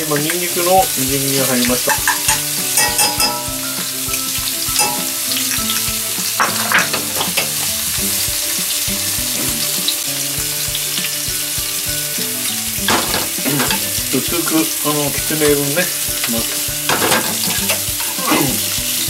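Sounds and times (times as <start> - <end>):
garlic sizzling in hot oil: 0.0 - 19.0.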